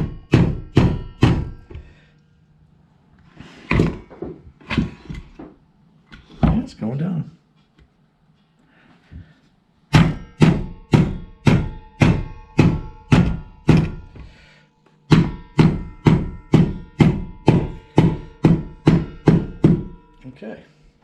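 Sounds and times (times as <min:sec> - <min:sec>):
hammer striking metal: 0:00.0 - 0:02.2, 0:09.9 - 0:21.0.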